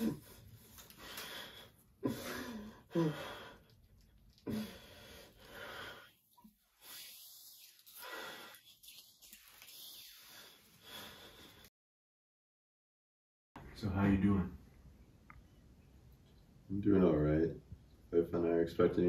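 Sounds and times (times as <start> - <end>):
man wheezing and gasping: 0.0 - 6.1.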